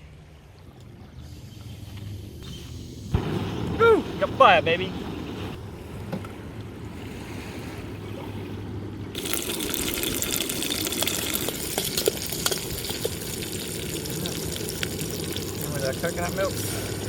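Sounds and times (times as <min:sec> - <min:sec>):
aromatics sizzling in a hot pan: 0:09.2 - 0:17.0.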